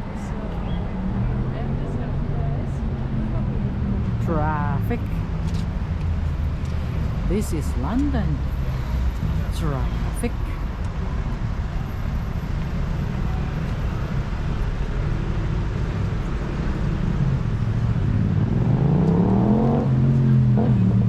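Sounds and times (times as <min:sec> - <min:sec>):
road traffic rumble: 0:00.0 - 0:21.0
vehicle accelerating past: 0:16.8 - 0:21.0.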